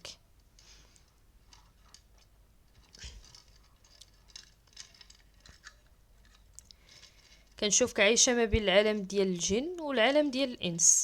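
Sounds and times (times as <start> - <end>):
light rustles: 0.6 - 7.6
faint small clicks: 2.9 - 6.8.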